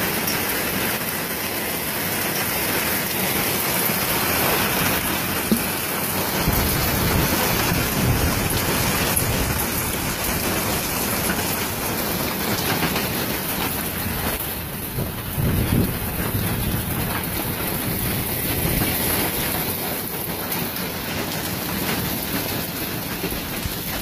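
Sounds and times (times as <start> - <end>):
heavy rain and hail on wood: 0.0 - 24.0.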